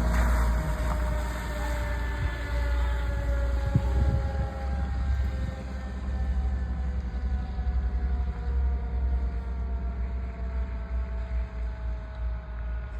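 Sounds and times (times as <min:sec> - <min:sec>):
whining tone falling in pitch: 0:00.0 - 0:06.5
fire truck engine rumble: 0:00.0 - 0:12.9.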